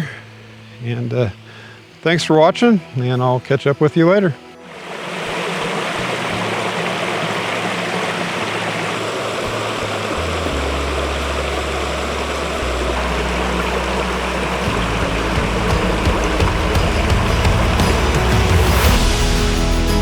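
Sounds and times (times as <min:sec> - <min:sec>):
low held music notes: 0:00.0 - 0:20.0
small waterfall rushing: 0:04.6 - 0:20.0.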